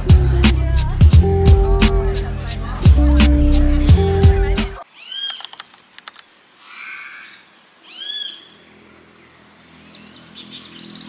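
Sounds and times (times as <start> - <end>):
music with heavy beat: 0.0 - 4.8
bird chirps: 4.9 - 6.0, 6.6 - 11.0
hissing bird call: 6.6 - 8.7.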